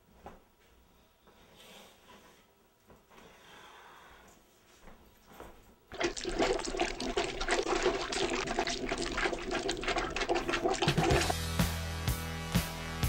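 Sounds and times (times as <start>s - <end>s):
toilet flushing: 5.9s - 11.5s.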